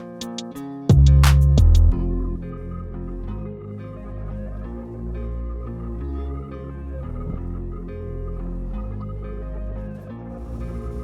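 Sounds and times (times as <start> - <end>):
ambient music with low notes: 0.0 - 11.0.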